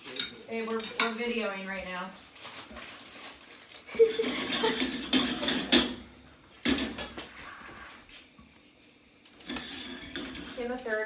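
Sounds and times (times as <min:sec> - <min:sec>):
utensils and dishes clattering: 0:00.0 - 0:01.3, 0:03.9 - 0:07.2, 0:09.4 - 0:11.0.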